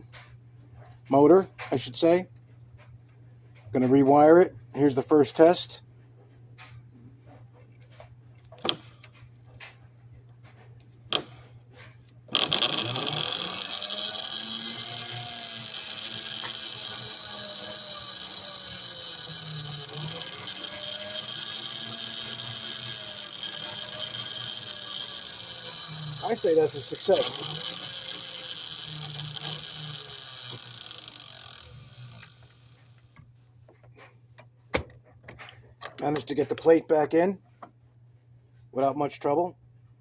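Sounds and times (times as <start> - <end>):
toy train motor whirring: 12.3 - 33.0
low motor hum: 12.3 - 33.2.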